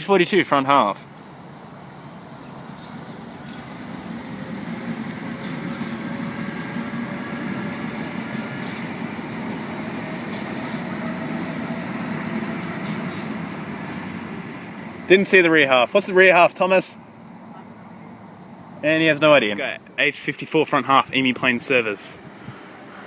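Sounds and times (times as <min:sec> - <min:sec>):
traction motor whine: 0:01.2 - 0:15.1, 0:22.2 - 0:23.0
train wheels rumbling on rails: 0:01.2 - 0:15.6, 0:22.2 - 0:23.0.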